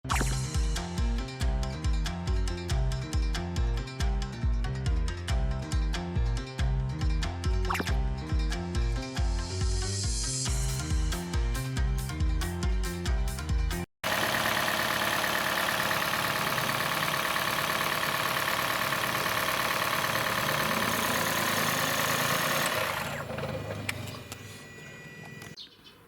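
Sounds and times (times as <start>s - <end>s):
petrol engine running with rattle: 14.0s - 25.6s.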